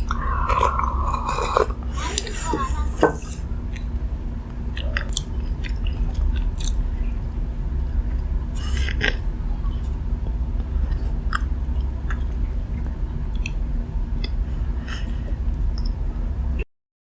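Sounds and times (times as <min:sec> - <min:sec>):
steady low hum: 0:00.0 - 0:16.7
chewing crunchy food: 0:03.7 - 0:07.4, 0:10.8 - 0:14.4
wet mouth clicks: 0:13.3 - 0:13.6.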